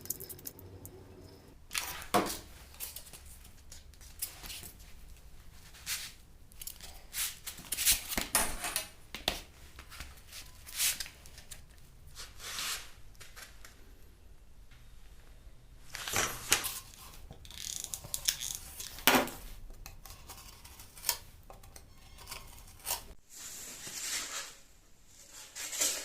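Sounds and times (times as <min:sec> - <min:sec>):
scraping and rustling of craft materials: 0:15.9 - 0:26.0.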